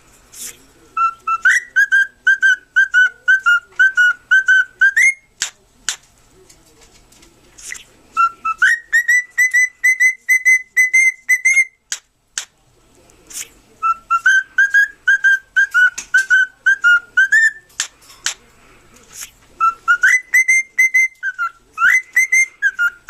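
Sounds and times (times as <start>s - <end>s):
cockatiel whistling: 0.4s - 5.3s, 7.6s - 11.9s, 13.8s - 17.7s, 19.2s - 23.0s.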